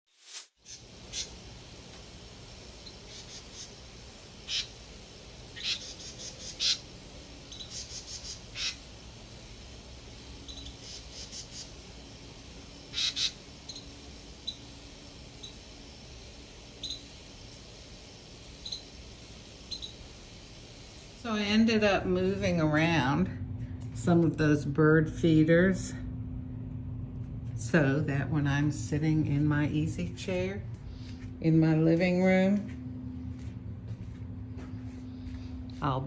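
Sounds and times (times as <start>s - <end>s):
small birds chirping: 0.6s - 2.0s, 2.7s - 21.2s.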